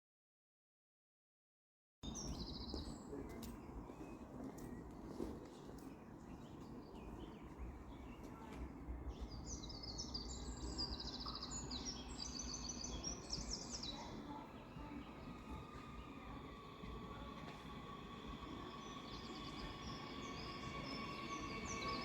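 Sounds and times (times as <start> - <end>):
songbird twittering: 9.1 - 15.4.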